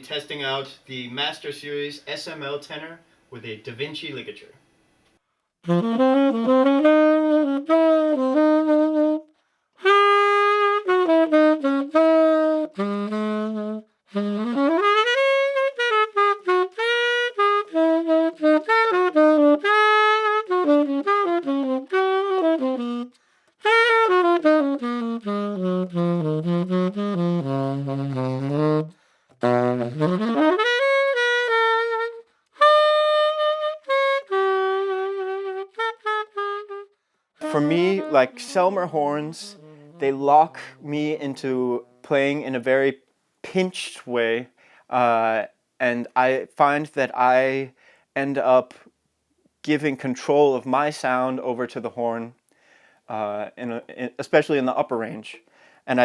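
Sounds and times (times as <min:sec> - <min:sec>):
solo tenor saxophone jazz: 0:05.6 - 0:46.4, 0:53.1 - 0:56.0.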